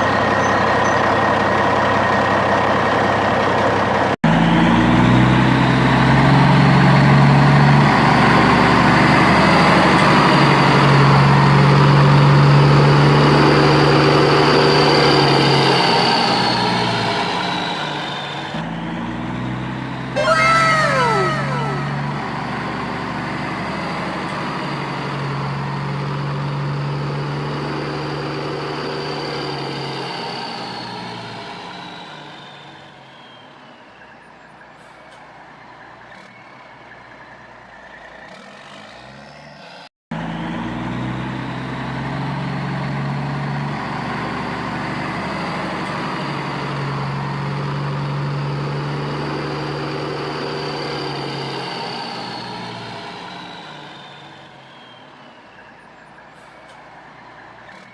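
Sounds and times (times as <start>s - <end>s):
heavy truck engine running: 0.0s - 20.2s.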